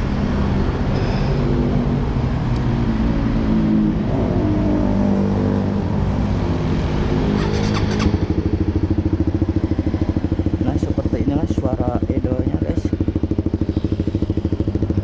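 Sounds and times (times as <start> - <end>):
motorcycle engine idling: 7.4 - 15.0.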